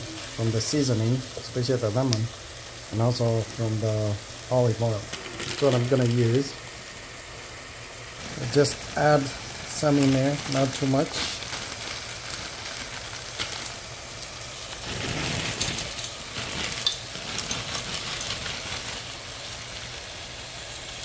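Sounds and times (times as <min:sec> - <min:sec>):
pot sizzling on stove: 0:00.0 - 0:21.0
vegetables poured from bag: 0:04.8 - 0:06.3, 0:08.2 - 0:21.0.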